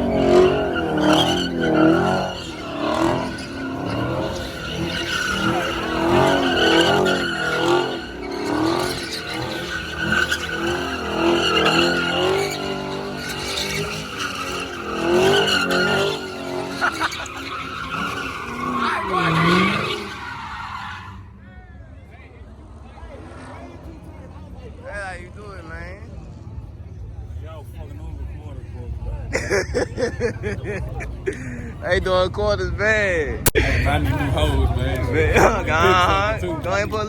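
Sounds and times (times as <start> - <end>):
car engine revving: 0.0 - 21.2
tires squealing: 0.0 - 37.0.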